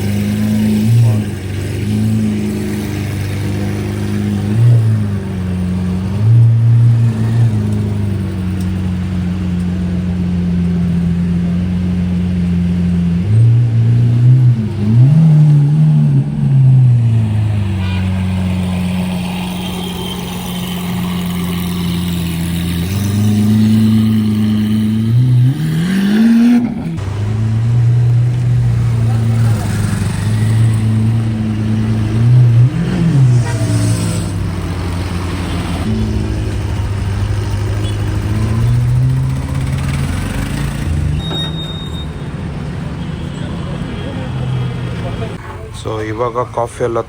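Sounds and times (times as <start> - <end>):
motorcycle engine revving: 0.0 - 45.6.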